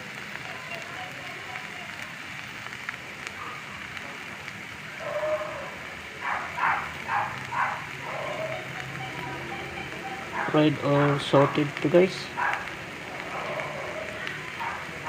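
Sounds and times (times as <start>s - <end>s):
meat sizzling in a frying pan: 0.0s - 15.0s
short pitched calls: 5.0s - 15.0s.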